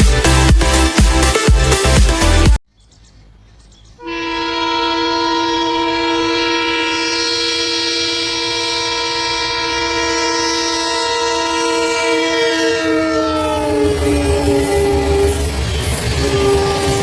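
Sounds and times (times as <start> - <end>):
low rumble of train: 2.8 - 17.0
locomotive air horn blast: 4.0 - 17.0.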